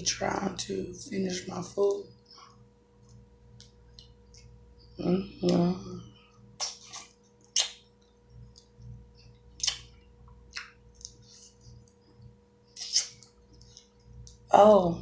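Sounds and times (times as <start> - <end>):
wet mouth clicks and smacks: 6.6 - 12.0, 12.8 - 14.4.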